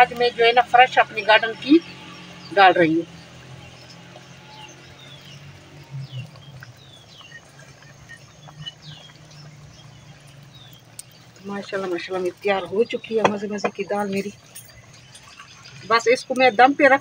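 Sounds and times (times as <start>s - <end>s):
small birds chirping: 0.0s - 17.0s
faint clicks: 10.2s - 11.3s.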